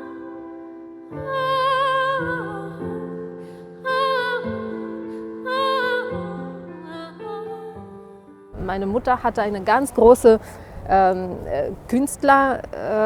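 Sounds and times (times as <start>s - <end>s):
woman singing with vibrato: 0.0s - 8.9s.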